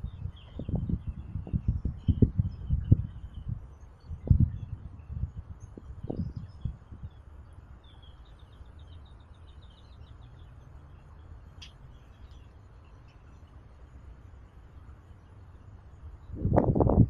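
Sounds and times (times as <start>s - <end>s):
small bird chirping: 0.0s - 13.7s
low steady rumble: 0.0s - 17.0s.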